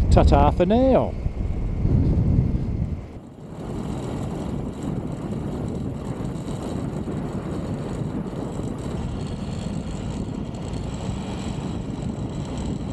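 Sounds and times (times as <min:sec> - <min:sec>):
motorcycle engine rumble: 0:00.0 - 0:12.9
road and wind noise: 0:00.0 - 0:12.9.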